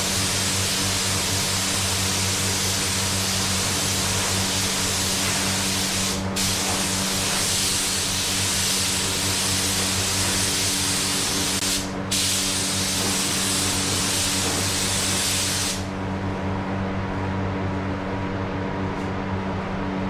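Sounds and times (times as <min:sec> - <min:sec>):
spray gun hissing: 0:00.0 - 0:15.9.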